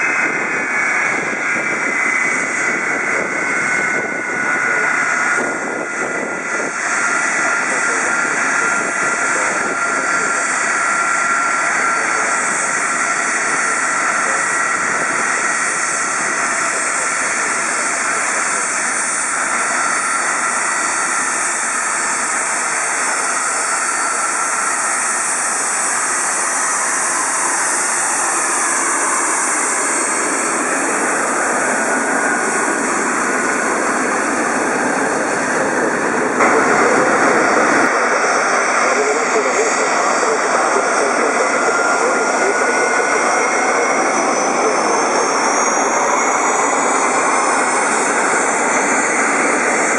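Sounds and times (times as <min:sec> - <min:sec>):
jet engine turbine whine: 0:00.0 - 0:49.9.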